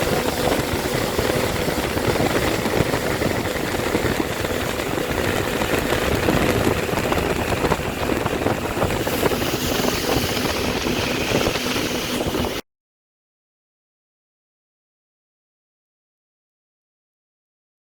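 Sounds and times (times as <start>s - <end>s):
jet ski engine running: 0.0s - 12.6s.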